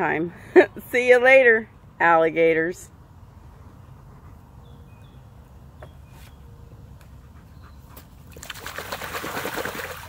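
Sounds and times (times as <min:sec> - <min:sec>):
water splashing: 0:08.2 - 0:10.0.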